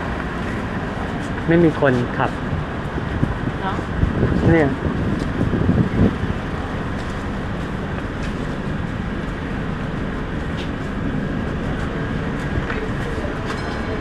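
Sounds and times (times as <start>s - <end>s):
metro train rumbling: 0.0s - 14.0s.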